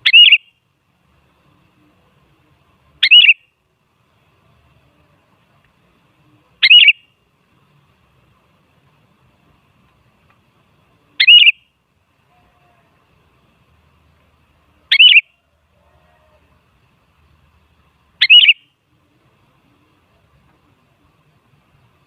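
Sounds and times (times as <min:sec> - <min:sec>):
bird bright wavering calls: 0:00.0 - 0:00.6, 0:03.0 - 0:03.5, 0:06.6 - 0:07.1, 0:11.2 - 0:11.7, 0:14.9 - 0:15.4, 0:18.2 - 0:18.8.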